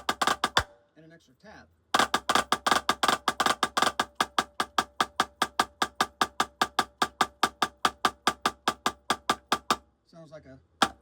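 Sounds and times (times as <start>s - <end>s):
drumstick single strokes: 0.0s - 0.8s, 2.0s - 9.8s.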